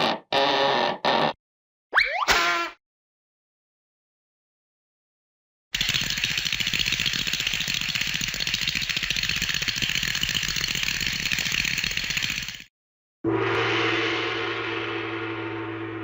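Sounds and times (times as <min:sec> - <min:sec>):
rapid mechanical rattle: 0:05.8 - 0:12.7.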